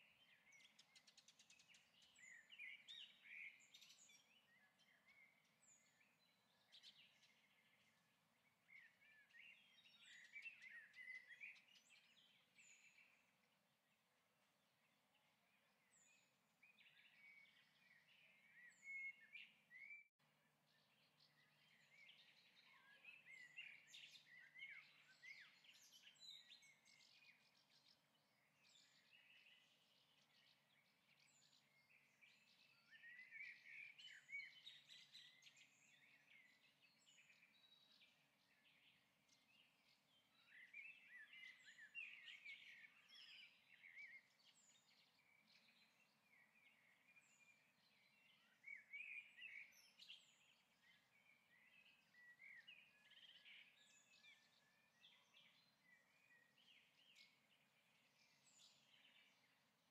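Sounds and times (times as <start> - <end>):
faint birdsong chirping: 0.0 - 59.9.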